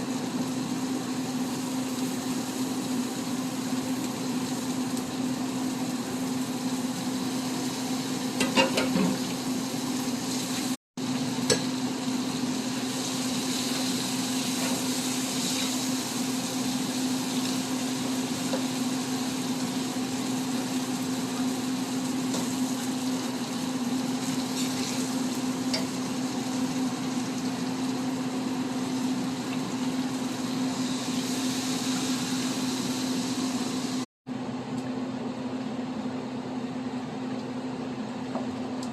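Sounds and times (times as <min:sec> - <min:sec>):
curry sizzling in a pot: 0:00.0 - 0:34.1.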